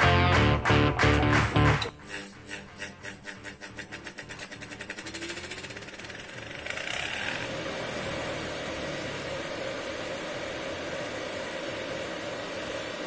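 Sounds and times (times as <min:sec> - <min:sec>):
sewing machine motor whirring: 0:01.9 - 0:08.2.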